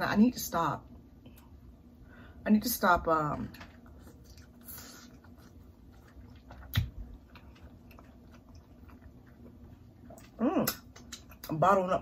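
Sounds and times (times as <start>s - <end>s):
chewing: 3.6s - 11.5s
wet mouth clicks and smacks: 10.2s - 11.5s.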